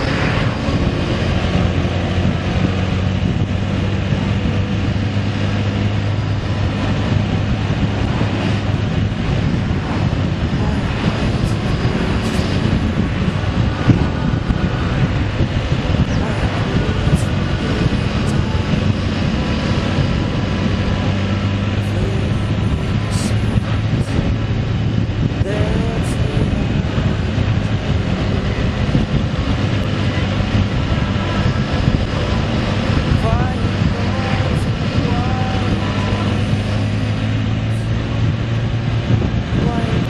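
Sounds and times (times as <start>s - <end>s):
motorcycle engine cruising: 0.0s - 40.0s
wind and road noise: 0.0s - 40.0s.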